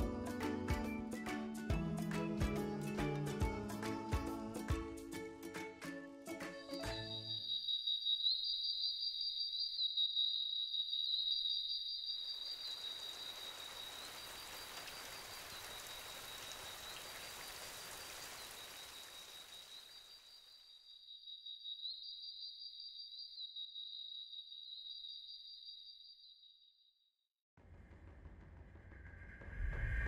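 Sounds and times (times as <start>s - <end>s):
insects trilling: 6.8s - 26.6s
steady rain: 12.5s - 20.3s.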